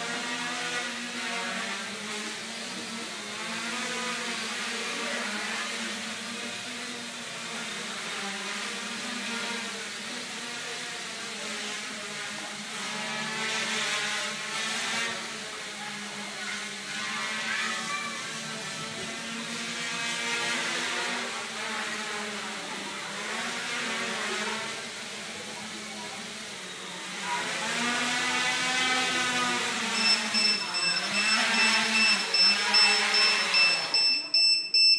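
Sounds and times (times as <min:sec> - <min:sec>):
quadcopter motors buzzing whine: 0:00.0 - 0:34.9
high electronic beeps: 0:29.9 - 0:34.9.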